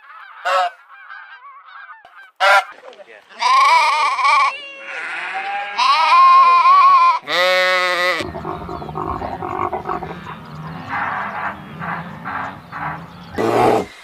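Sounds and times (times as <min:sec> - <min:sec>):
animal bleating: 0:03.4 - 0:13.9
low rough pulsing animal sound: 0:08.2 - 0:14.0.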